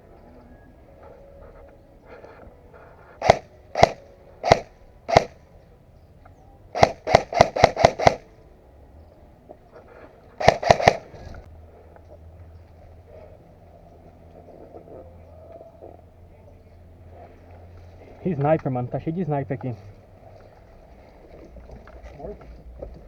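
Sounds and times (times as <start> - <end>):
airsoft gun shots: 3.2 - 5.4, 6.8 - 8.3, 10.4 - 11.4.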